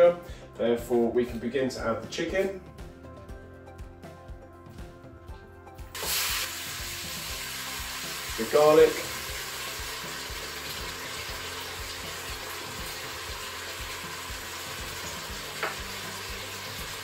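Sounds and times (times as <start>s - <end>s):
meat sizzling in hot oil: 5.9s - 17.0s.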